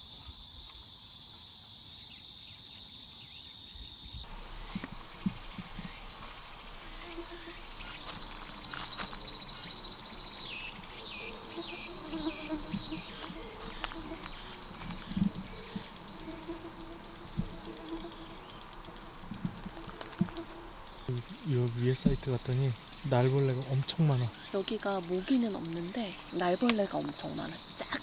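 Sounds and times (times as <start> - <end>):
insect pulsing call: 0.0 - 28.0
insects buzzing: 0.0 - 28.0.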